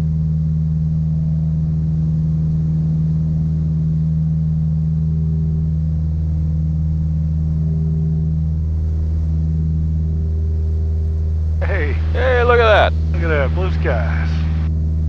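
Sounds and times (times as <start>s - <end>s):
propeller aircraft engines droning: 5.2s - 15.0s.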